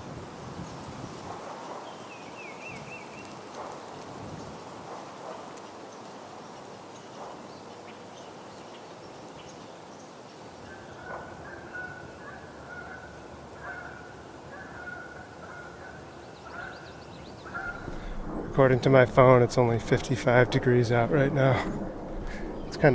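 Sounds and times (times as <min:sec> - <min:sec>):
wind noise on microphone: 0:00.0 - 0:05.4, 0:16.5 - 0:22.9.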